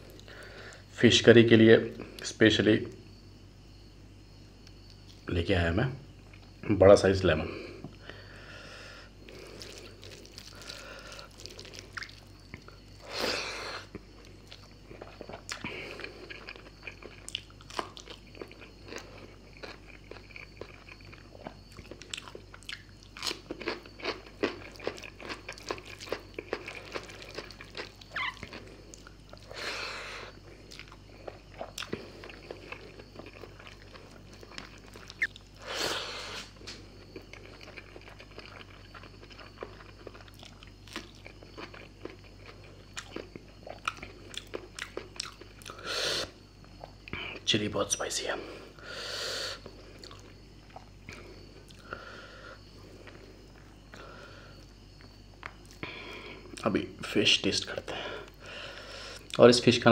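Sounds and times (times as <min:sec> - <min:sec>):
wet chewing: 0:09.2 - 0:13.1, 0:13.7 - 0:45.8, 0:49.6 - 0:52.1
mouth clicks and smacks: 0:35.0 - 0:35.4.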